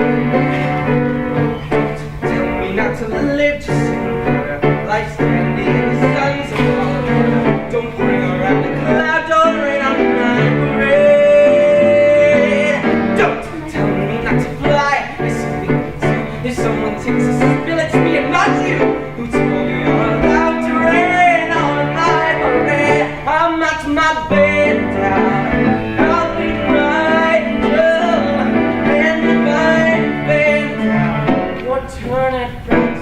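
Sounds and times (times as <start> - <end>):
person singing: 0.0 - 33.0
piano accompaniment: 0.0 - 33.0.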